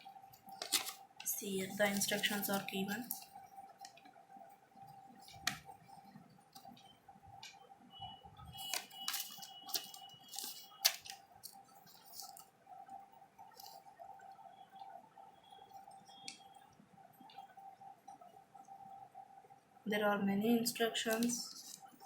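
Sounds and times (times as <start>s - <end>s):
faint steady hum: 0.0s - 22.0s
paper rustling and crinkling: 0.4s - 3.3s, 8.6s - 12.5s, 21.1s - 22.0s.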